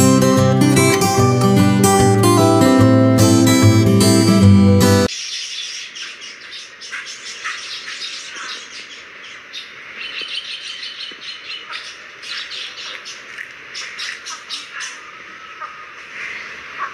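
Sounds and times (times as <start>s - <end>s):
acoustic guitar music: 0.0s - 5.1s
small birds chirping: 5.1s - 16.9s.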